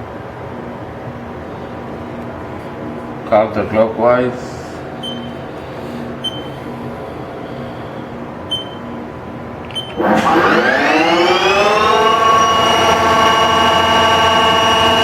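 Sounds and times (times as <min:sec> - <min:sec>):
machine hum: 0:00.0 - 0:15.0
control panel beeps: 0:05.0 - 0:05.4, 0:06.2 - 0:06.6, 0:08.5 - 0:08.9, 0:09.7 - 0:10.0
lathe spindle whine: 0:09.9 - 0:15.0.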